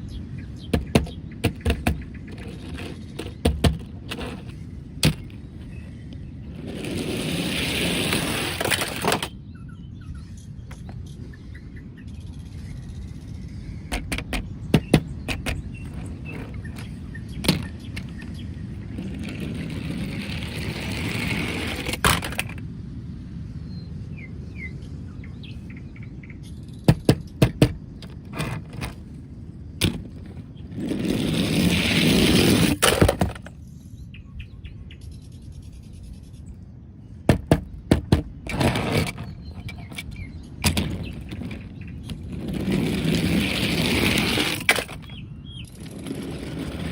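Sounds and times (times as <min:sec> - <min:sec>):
plastic toy vehicles rolling: 0:00.7 - 0:09.4, 0:13.9 - 0:22.6, 0:26.9 - 0:29.2, 0:29.8 - 0:33.6, 0:37.3 - 0:46.9.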